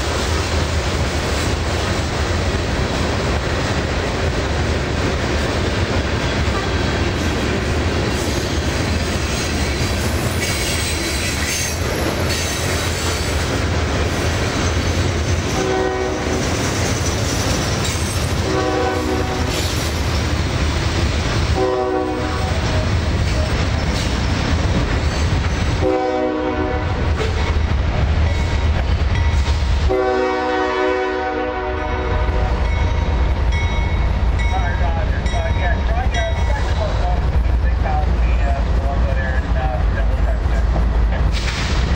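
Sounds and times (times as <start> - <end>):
freight train rumbling on rails: 0.0 - 41.9
locomotive horn blasts: 15.5 - 16.5, 18.4 - 19.6, 21.5 - 22.6, 25.8 - 27.1, 29.9 - 32.7.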